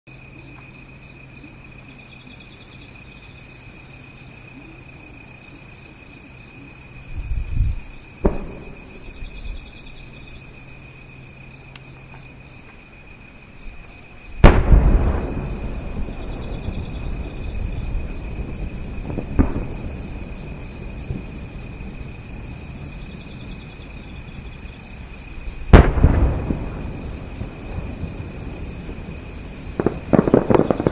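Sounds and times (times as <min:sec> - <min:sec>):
crickets chirping: 0:00.1 - 0:30.9
firework bangs: 0:07.2 - 0:11.2, 0:13.6 - 0:30.9
firework thump: 0:08.2 - 0:09.6, 0:14.4 - 0:21.4, 0:25.7 - 0:30.9
rolling rumble: 0:11.8 - 0:30.9.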